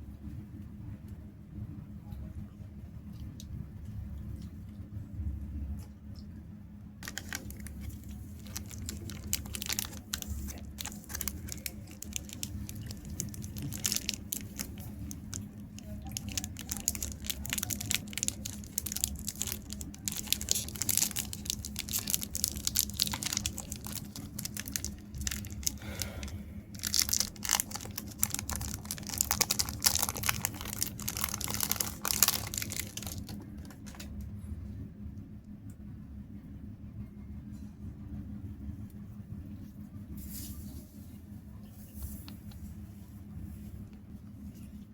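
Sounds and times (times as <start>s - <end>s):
steady low hum: 0.0s - 44.9s
wrappers crinkling and tearing: 7.0s - 34.1s.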